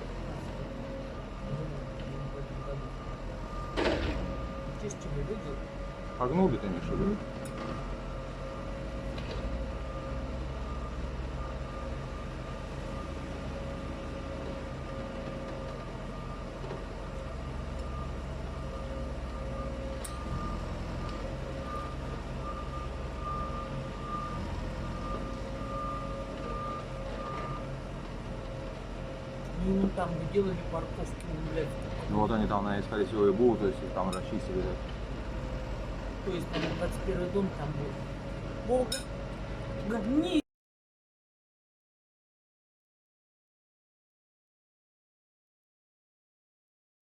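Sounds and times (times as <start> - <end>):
heavy vehicle engine running: 0.0 - 40.4
reversing alarm beeping: 0.7 - 7.2, 9.6 - 27.8.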